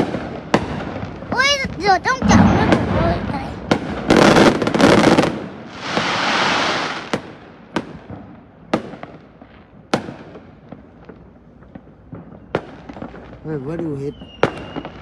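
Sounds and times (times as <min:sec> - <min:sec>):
fireworks bangs: 0:00.6 - 0:08.2
fireworks rushing crackle: 0:01.3 - 0:07.5.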